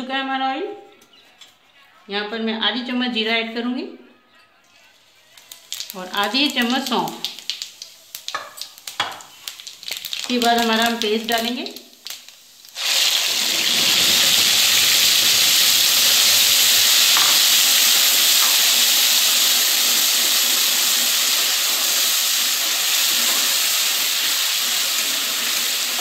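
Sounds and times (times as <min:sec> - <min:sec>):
paste sizzling in hot oil: 0:04.9 - 0:26.0.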